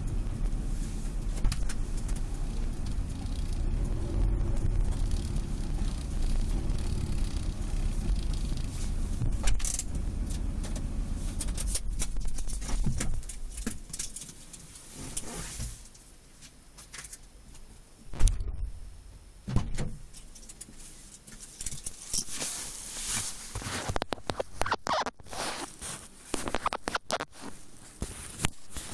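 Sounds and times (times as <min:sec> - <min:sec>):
car road rumble: 0:00.0 - 0:13.9
crackling clicks in car interior: 0:00.0 - 0:15.3
rustling: 0:00.0 - 0:17.2, 0:20.6 - 0:28.9.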